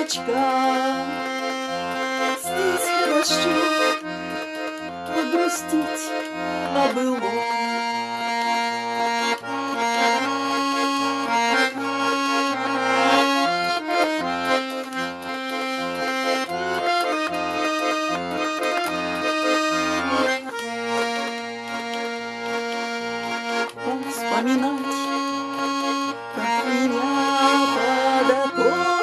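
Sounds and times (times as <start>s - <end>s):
button accordion playing: 0.0s - 29.0s.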